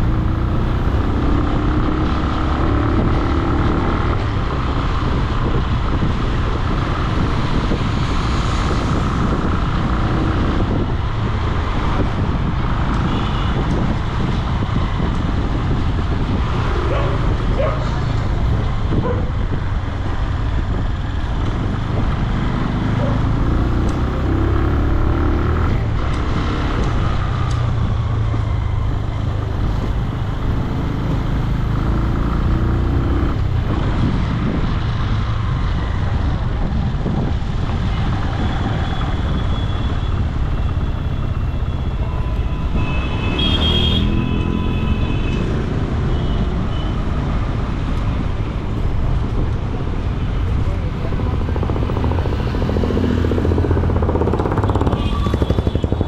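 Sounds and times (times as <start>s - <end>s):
road and wind noise: 0.0s - 56.0s
motorcycle engine revving: 50.5s - 56.0s.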